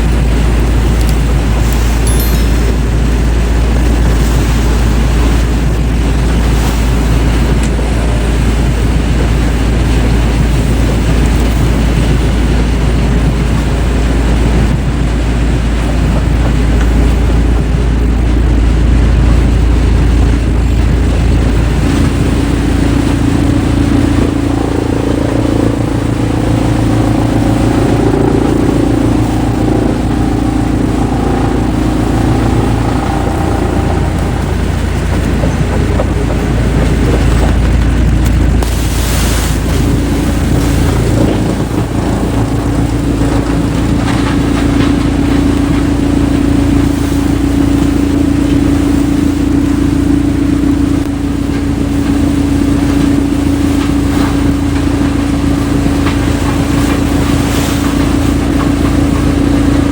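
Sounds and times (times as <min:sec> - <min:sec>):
engine hum: 0:00.0 - 0:59.9
heavy machinery deep rumble: 0:00.0 - 0:59.9.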